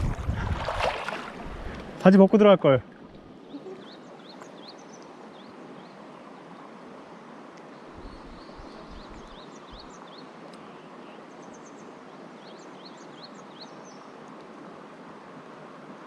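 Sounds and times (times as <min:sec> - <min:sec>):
low bumps: 0:00.0 - 0:01.9
mountain stream rushing: 0:00.0 - 0:16.0.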